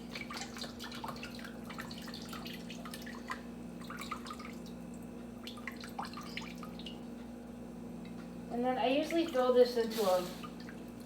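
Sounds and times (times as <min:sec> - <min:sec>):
broth dripping into bowl: 0:00.0 - 0:08.4.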